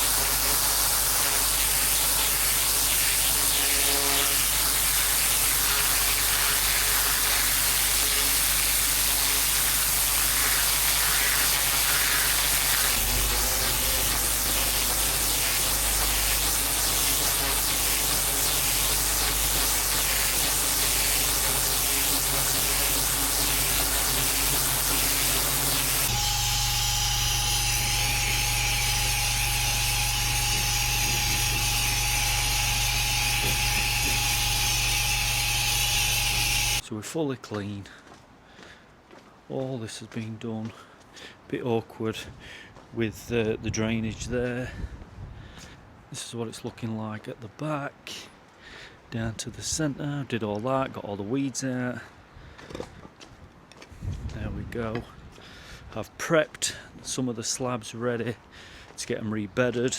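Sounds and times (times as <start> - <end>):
pressure washer spraying: 0.0 - 36.8
steady whine and hum: 0.0 - 36.8.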